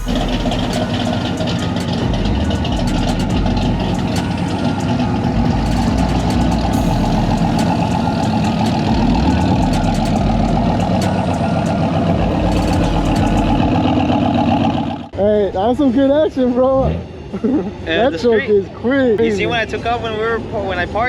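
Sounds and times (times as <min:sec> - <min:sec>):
truck engine idling: 0:00.0 - 0:15.1.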